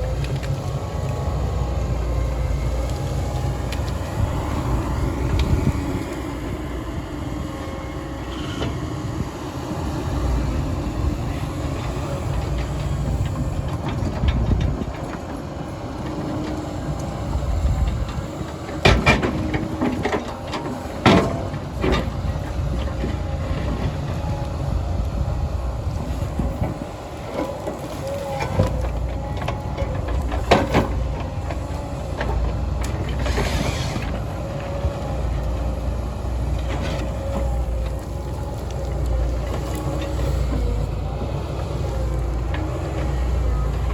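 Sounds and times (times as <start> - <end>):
heavy diesel machinery running: 0.0 - 43.9.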